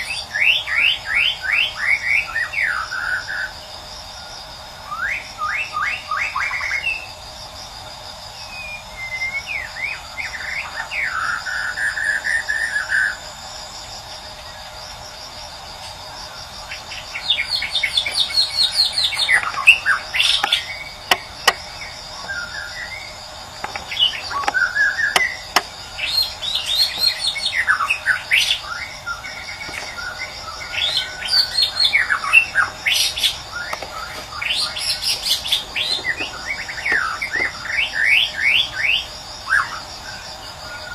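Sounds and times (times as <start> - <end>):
high insect trill: 0.0 - 40.9
songbird whistled song: 8.4 - 13.2, 16.9 - 39.8.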